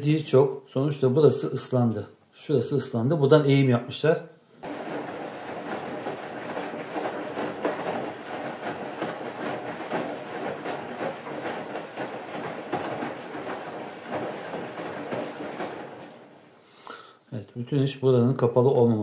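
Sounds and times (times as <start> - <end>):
washing machine rattling: 4.6 - 16.8.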